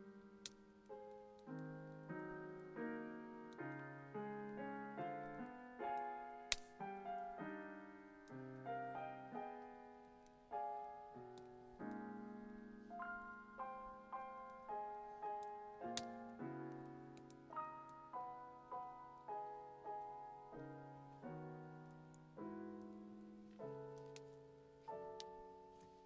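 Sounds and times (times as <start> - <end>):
gentle piano music: 0.0 - 26.0
faint clicks: 5.3 - 6.8, 22.8 - 26.0
sharp snap: 6.5 - 6.8.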